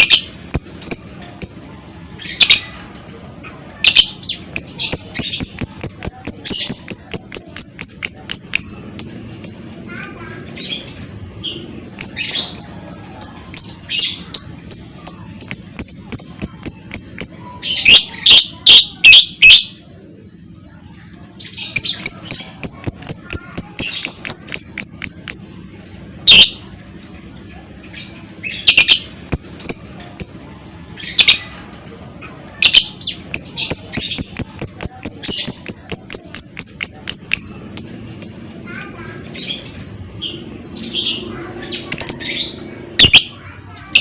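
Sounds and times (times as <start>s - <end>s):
lovebird chattering: 3.8s - 10.8s, 11.5s - 19.7s, 21.4s - 25.6s, 26.2s - 26.6s, 28.4s - 30.4s, 32.5s - 44.0s.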